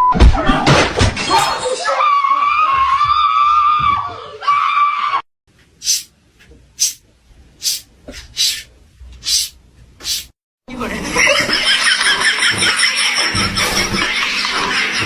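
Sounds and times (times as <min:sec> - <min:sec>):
cat hissing: 0:05.8 - 0:06.1, 0:06.8 - 0:07.0, 0:07.6 - 0:10.3.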